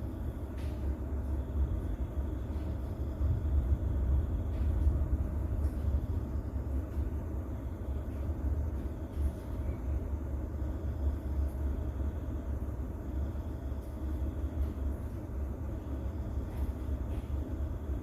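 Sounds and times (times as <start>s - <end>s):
distant thunder rumble: 1.6s - 8.8s.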